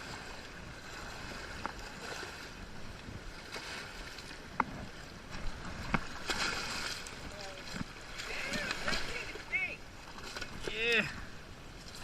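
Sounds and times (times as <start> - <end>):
water noise: 0.0 - 12.0
wind: 0.0 - 12.0.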